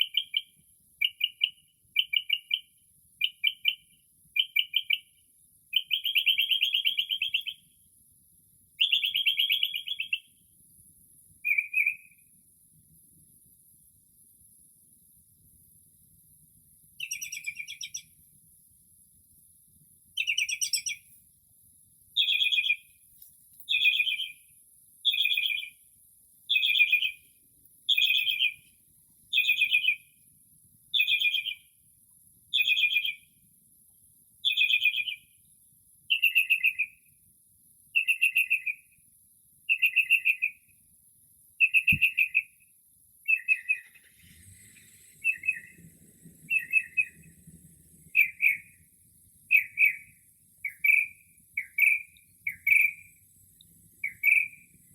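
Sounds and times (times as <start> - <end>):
mockingbird singing: 0.0 - 5.1, 5.7 - 7.6, 8.8 - 10.3, 11.4 - 12.2, 17.0 - 18.2, 20.2 - 21.1, 22.2 - 22.9, 23.7 - 25.8, 26.5 - 27.2, 27.9 - 28.6, 29.3 - 30.1, 30.9 - 31.7, 32.5 - 33.3, 34.4 - 35.3, 36.1 - 37.0, 38.0 - 38.9, 39.7 - 40.6, 41.6 - 42.6, 43.2 - 44.1, 44.7 - 45.8, 46.4 - 47.4, 48.0 - 48.8, 49.4 - 53.2, 54.0 - 54.8.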